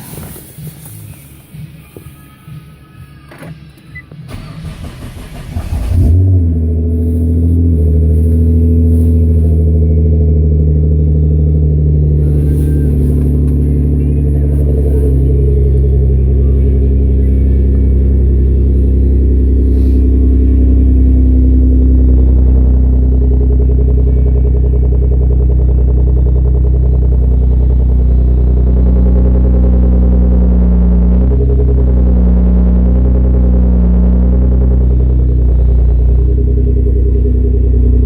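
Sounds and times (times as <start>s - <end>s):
car engine idling: 0.0s - 38.0s
car engine starter cranking: 3.3s - 9.8s.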